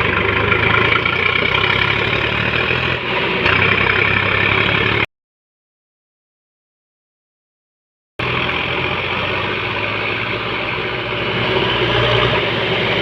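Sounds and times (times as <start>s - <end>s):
tractor diesel engine running: 0.0s - 5.1s, 8.2s - 13.0s.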